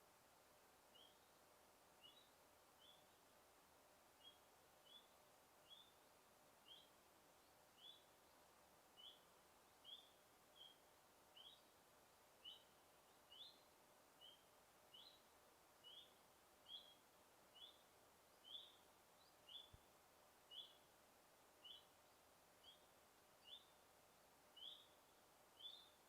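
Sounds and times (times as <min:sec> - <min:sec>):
faint forest hiss: 0:00.0 - 0:26.0
bird chirping: 0:00.9 - 0:01.4, 0:02.0 - 0:03.2, 0:04.2 - 0:11.8, 0:12.4 - 0:19.9, 0:20.5 - 0:20.9, 0:21.6 - 0:23.8, 0:24.5 - 0:26.0.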